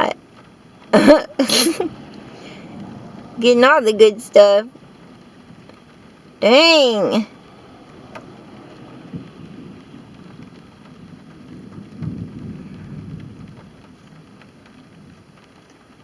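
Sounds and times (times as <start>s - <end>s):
thunder rumbling: 7.3s - 16.0s.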